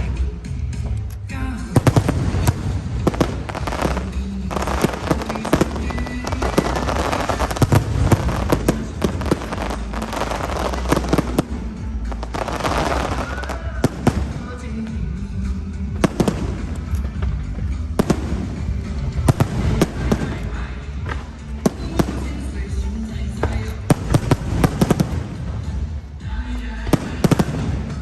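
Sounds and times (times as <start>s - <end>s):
music playing: 0.0s - 28.0s
fireworks bangs and crackle: 1.7s - 28.0s.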